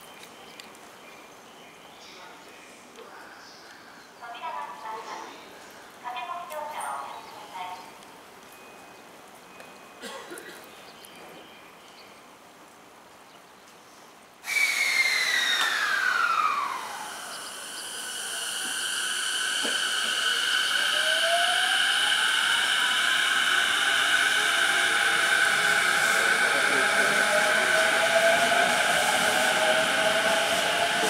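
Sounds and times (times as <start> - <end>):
train whine: 14.4 - 31.0
electric train rushing: 14.5 - 31.0
high steady squealing tones: 14.6 - 31.0.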